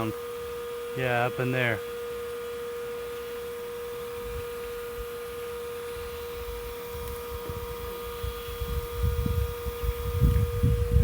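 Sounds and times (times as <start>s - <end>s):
vacuum motor humming: 0.0s - 11.0s.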